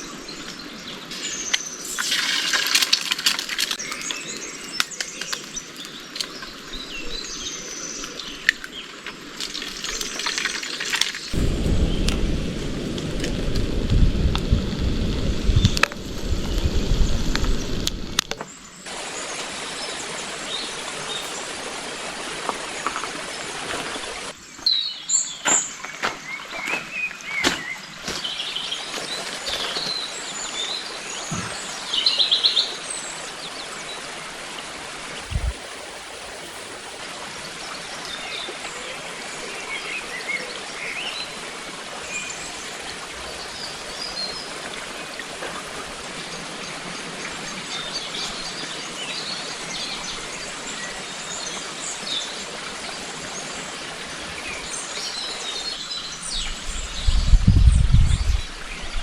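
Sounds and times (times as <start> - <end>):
stream rushing: 0.0 - 24.4, 26.3 - 57.0
low rumble: 11.4 - 18.2
small birds chirping: 35.2 - 37.0.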